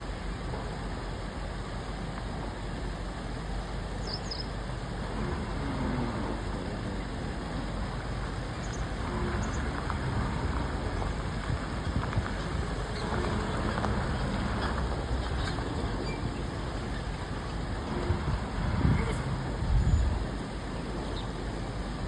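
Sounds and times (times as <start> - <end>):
outdoor background noise: 0.0 - 22.0
high bird-like chirps: 4.0 - 4.6.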